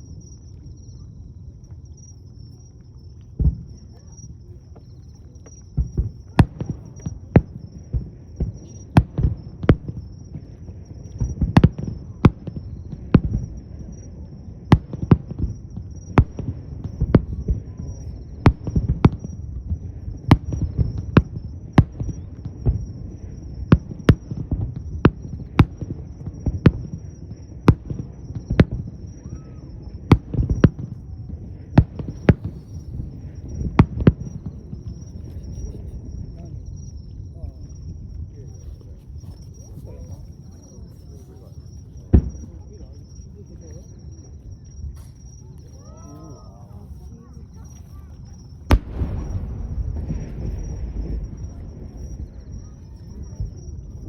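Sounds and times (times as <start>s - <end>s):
low rumble of booms: 3.3s - 40.5s, 48.4s - 54.0s
firework shells bursting: 48.6s - 54.0s.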